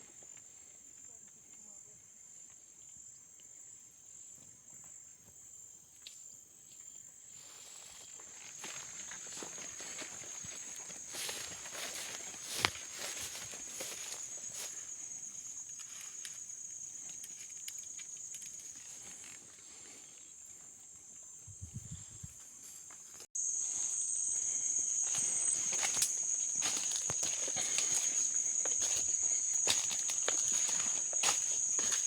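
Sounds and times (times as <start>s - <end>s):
footsteps on leaf litter: 7.9s - 14.8s, 25.0s - 32.0s
insects buzzing drone: 23.4s - 32.0s.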